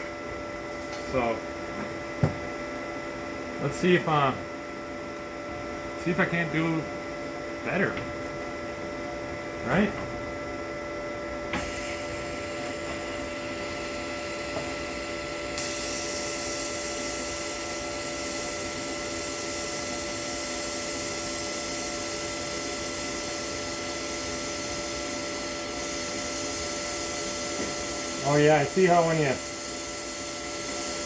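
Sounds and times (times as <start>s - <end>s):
welder whine: 0.0s - 31.0s
welding arc hiss: 11.5s - 31.0s.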